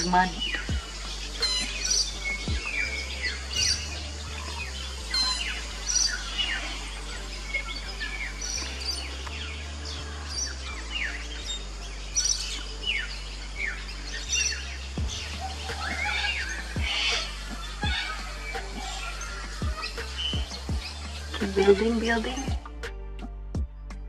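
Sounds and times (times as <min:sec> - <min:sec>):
birds twittering: 0:00.0 - 0:22.9
soft background music: 0:00.0 - 0:24.0.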